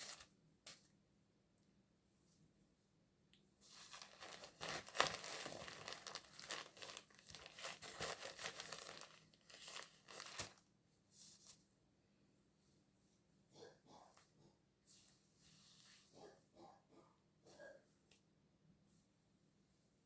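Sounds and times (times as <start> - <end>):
crinkling rustling handling noise: 3.6 - 10.6.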